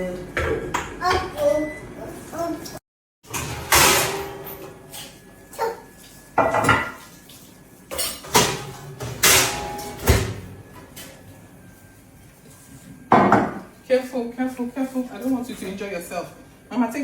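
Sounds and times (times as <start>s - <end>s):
pots and pans clanking: 3.3s - 5.2s, 6.4s - 7.1s, 7.9s - 11.2s.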